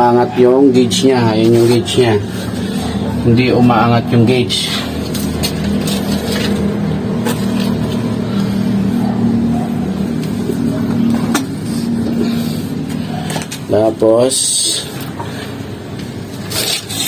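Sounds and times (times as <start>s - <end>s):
electric water pump humming: 2.2s - 13.6s.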